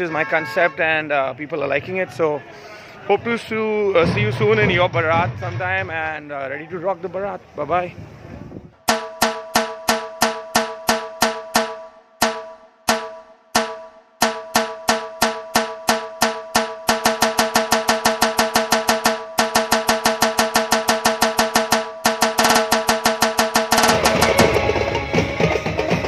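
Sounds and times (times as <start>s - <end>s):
drum beaten in steady rhythm: 8.9s - 26.0s.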